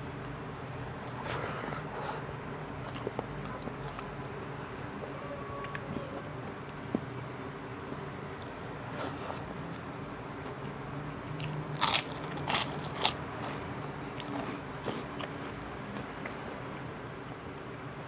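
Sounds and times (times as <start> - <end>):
crunchy food being bitten and chewed: 2.8 - 4.1, 11.2 - 16.4.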